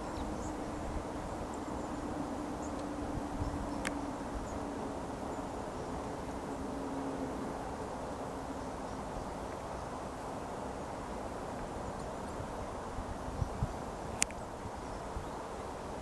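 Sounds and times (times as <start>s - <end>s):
small birds calling: 0.0s - 6.4s
low outdoor rumble with hum: 0.0s - 16.0s.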